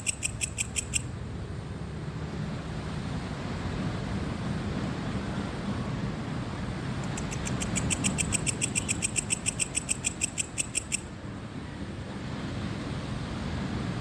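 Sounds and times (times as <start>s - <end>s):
cricket chirping: 0.0s - 1.1s, 7.0s - 11.1s
wind: 0.0s - 14.0s.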